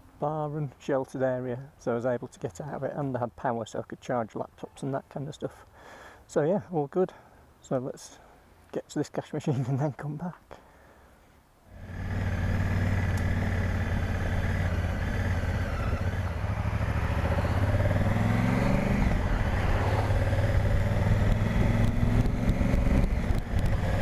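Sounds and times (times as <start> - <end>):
motorcycle engine running: 11.8 - 24.0.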